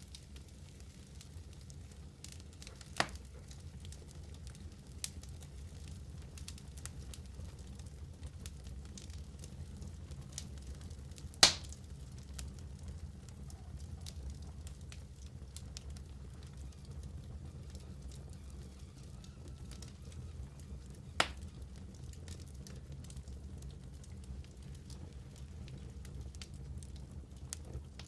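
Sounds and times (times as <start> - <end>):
fireplace fire crackling: 0.0 - 28.0
loud sharp fire pop: 11.4 - 11.7.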